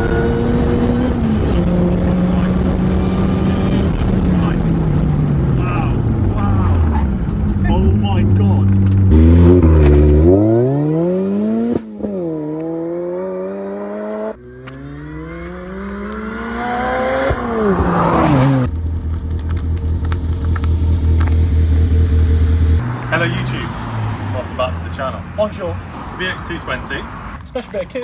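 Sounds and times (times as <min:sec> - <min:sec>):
car engine accelerating hard: 0:00.0 - 0:27.4
car engine pulsing idle: 0:14.4 - 0:25.6.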